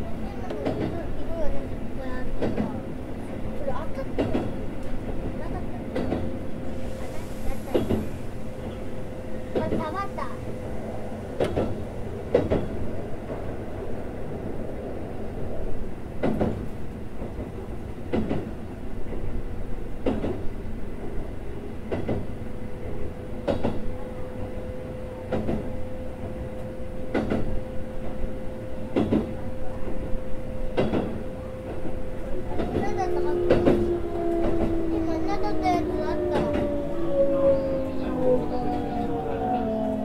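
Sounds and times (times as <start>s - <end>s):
train wheels rumbling on rail: 0.0s - 40.0s
rail-joint clack: 0.4s - 1.5s, 2.2s - 8.9s, 9.5s - 10.3s, 11.4s - 13.5s, 16.2s - 19.3s, 20.0s - 20.5s, 21.9s - 28.2s, 28.9s - 30.1s, 30.7s - 36.8s.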